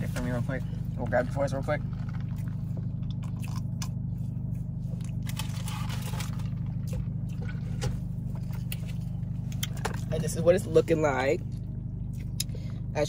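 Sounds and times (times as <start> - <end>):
car engine humming: 0.0 - 13.0
rustling and scraping: 4.0 - 10.1.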